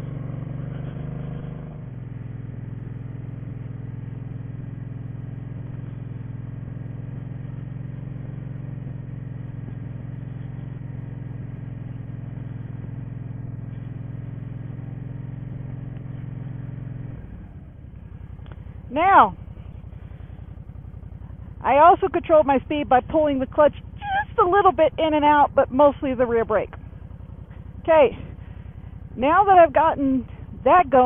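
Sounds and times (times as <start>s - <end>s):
motorcycle engine at low revs: 0.0s - 31.0s.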